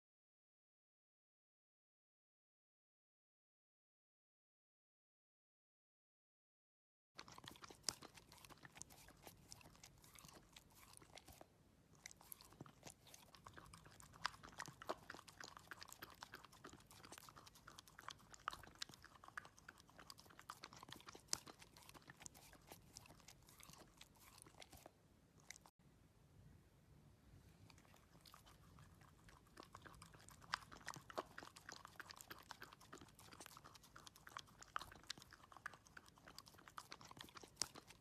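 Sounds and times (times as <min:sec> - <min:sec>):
dog crunching food: 0:07.2 - 0:25.7, 0:27.6 - 0:38.0.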